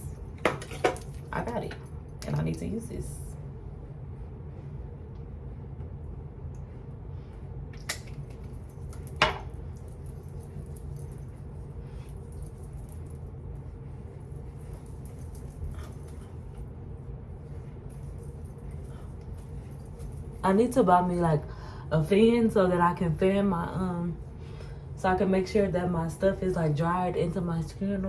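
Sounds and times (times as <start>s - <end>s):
low room hum: 0.0s - 28.0s.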